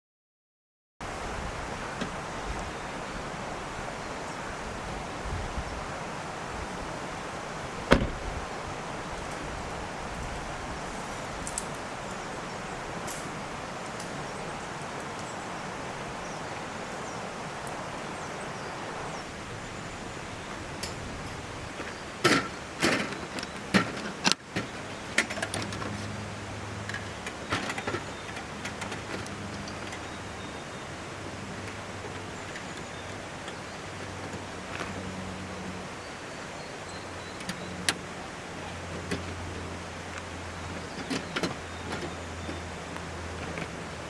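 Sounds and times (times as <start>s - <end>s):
mountain stream rushing: 1.0s - 44.0s
sharp clicks and knocks: 7.9s - 8.3s.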